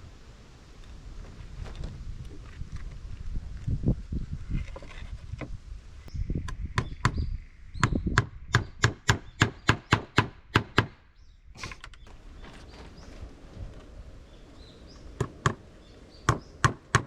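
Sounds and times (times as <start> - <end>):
hand tool striking wood: 16.3 - 17.0.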